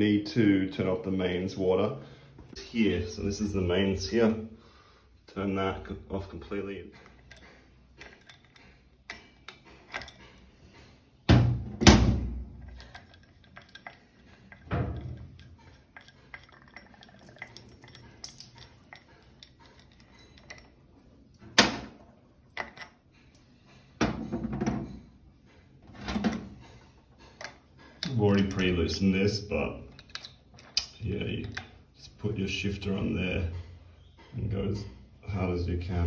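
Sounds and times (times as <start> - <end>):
metal hand tools clinking: 6.9 - 10.8, 12.6 - 21.4, 27.2 - 31.7.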